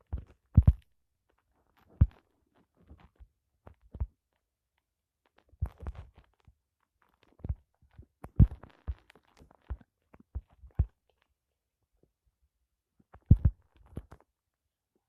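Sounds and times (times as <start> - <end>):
knocks and thumps: 13.2 - 13.6.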